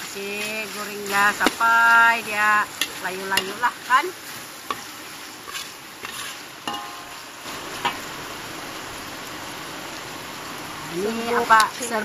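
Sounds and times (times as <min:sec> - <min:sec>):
food sizzling in hot oil: 0:00.0 - 0:12.0
metal ladle scraping wok: 0:02.7 - 0:08.0.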